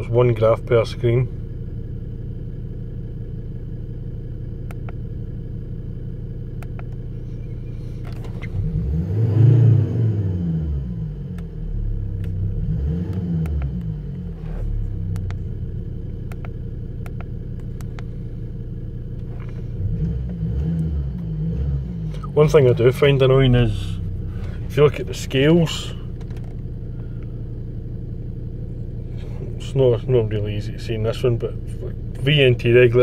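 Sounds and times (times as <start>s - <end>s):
diesel engine idling and revving: 0.0s - 33.0s.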